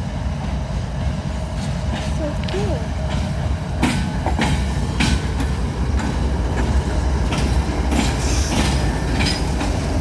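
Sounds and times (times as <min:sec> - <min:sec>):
freight train rumbling: 0:00.0 - 0:10.0
wheels clacking over rail joints: 0:00.3 - 0:10.0.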